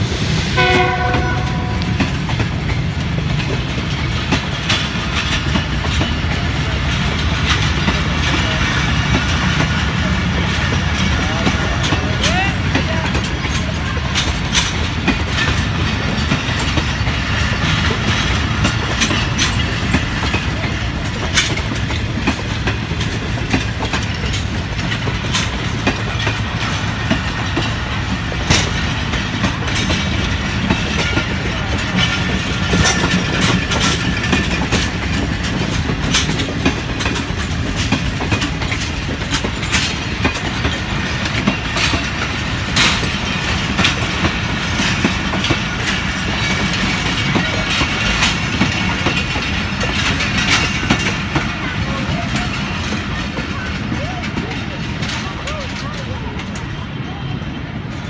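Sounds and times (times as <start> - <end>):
train rumbling past: 0.0 - 58.0
train wheels clacking on rail joints: 0.0 - 58.0.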